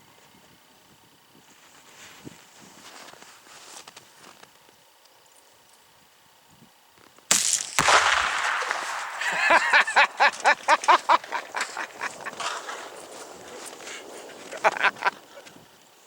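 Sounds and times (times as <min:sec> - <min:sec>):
rifle shot: 0:07.3 - 0:13.3
sharp cracks: 0:07.3 - 0:15.3.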